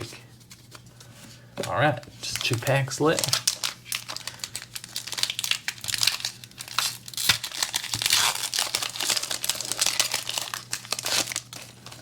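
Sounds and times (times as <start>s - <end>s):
foil wrapper tearing and crinkling: 2.3s - 12.0s.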